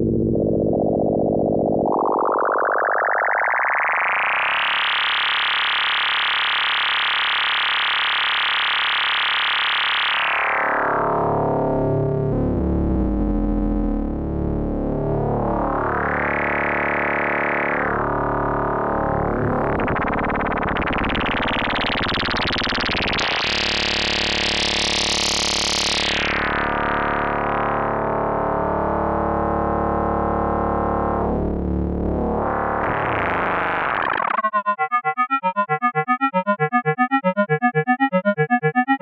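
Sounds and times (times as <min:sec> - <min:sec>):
synthesizer buzzing tone: 0:18.8 - 0:23.4, 0:32.8 - 0:39.0.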